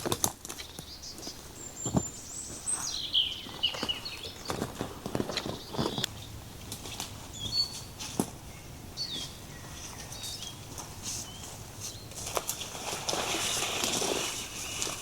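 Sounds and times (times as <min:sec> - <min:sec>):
birds chirping and whistling: 0:00.6 - 0:06.4, 0:07.3 - 0:12.3
rustling: 0:09.2 - 0:15.0.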